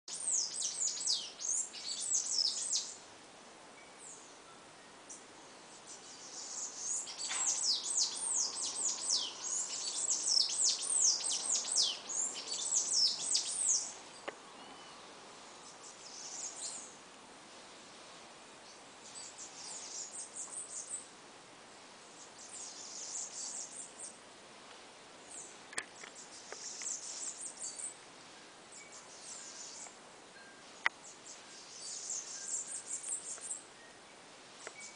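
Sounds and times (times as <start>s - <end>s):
songbird singing high notes: 5.9s - 14.0s.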